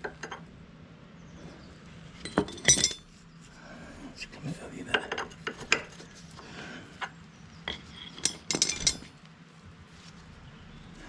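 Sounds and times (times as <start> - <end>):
metal tools clinking on fittings: 2.2 - 3.1, 7.6 - 9.1.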